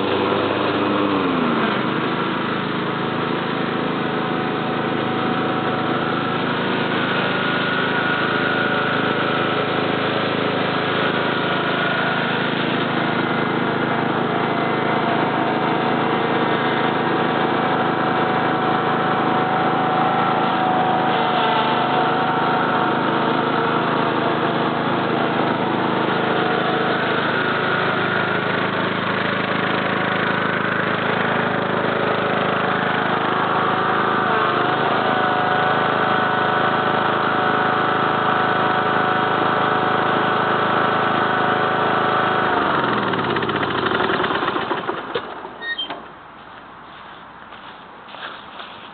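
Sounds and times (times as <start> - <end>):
lawn tractor engine running: 0.0 - 48.9.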